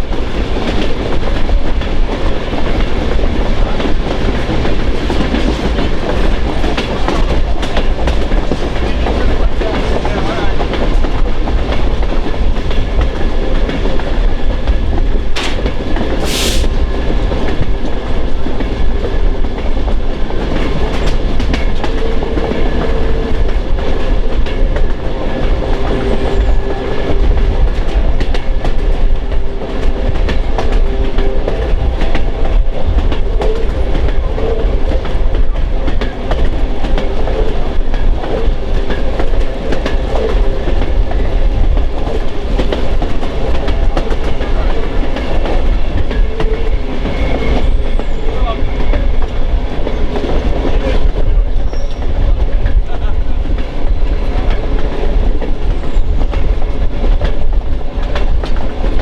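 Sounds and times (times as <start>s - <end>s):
train rumbling on rails: 0.0s - 59.0s
wheels clicking over track: 14.9s - 16.7s
short high hiss: 16.2s - 16.8s.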